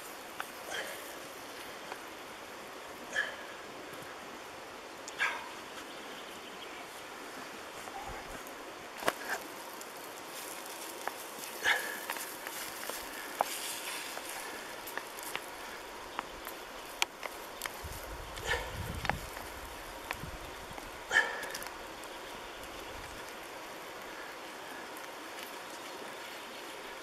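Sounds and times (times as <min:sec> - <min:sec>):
dog barking: 0:05.2 - 0:05.6, 0:11.6 - 0:12.0, 0:18.4 - 0:18.8, 0:21.1 - 0:21.6.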